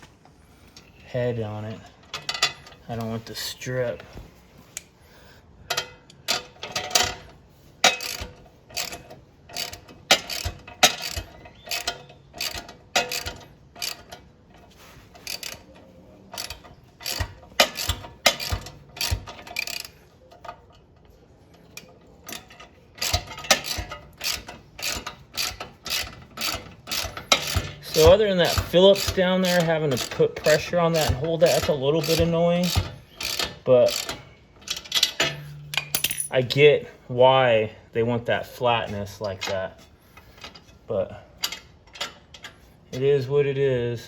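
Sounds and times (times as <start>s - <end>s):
ratchet wrench clicking: 5.7s - 14.3s, 15.1s - 15.7s, 16.3s - 20.4s, 21.7s - 36.3s.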